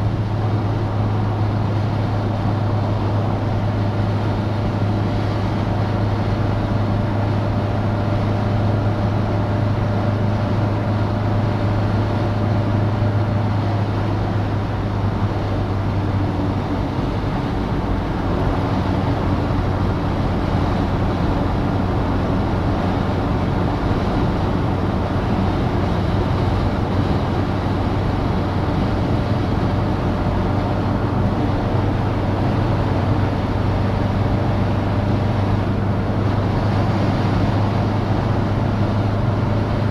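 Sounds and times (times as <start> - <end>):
car engine humming: 0.0 - 39.9
wind and road noise: 0.0 - 39.9.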